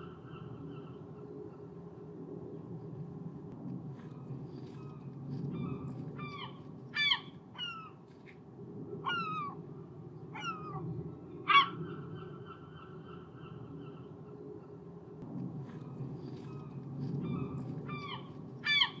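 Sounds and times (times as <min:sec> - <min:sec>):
low background rush: 0:00.0 - 0:19.0
gulls calling: 0:15.9 - 0:19.0.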